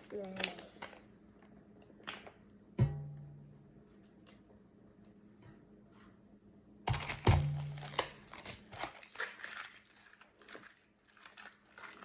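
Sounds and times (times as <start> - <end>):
plastic wrappers crinkling: 0.0 - 2.4, 6.9 - 12.0.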